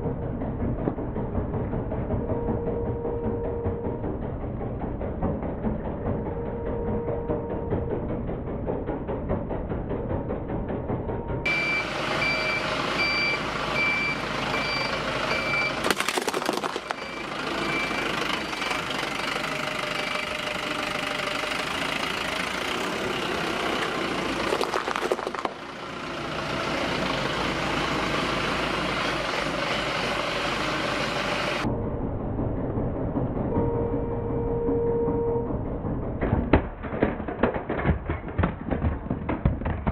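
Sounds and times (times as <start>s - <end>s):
truck engine running: 0.0s - 39.9s
reversing alarm beeping: 2.3s - 4.1s, 6.2s - 8.0s, 11.4s - 15.8s, 16.8s - 19.0s, 33.5s - 35.6s
crackling crunches: 15.8s - 17.0s, 24.4s - 25.6s.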